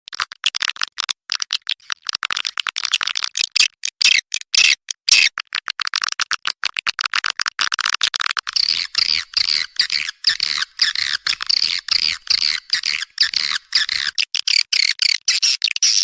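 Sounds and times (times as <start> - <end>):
swiftlet chattering calls: 8.5 - 14.8.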